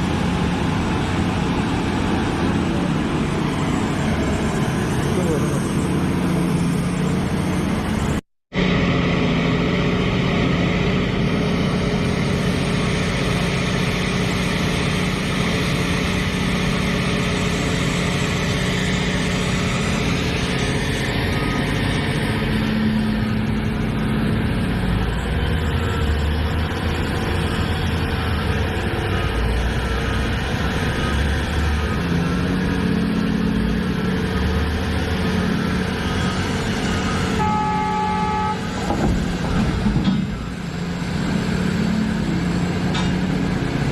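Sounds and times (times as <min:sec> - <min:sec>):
excavator diesel engine running: 0:00.0 - 0:43.9
horn-like tone: 0:37.0 - 0:38.9.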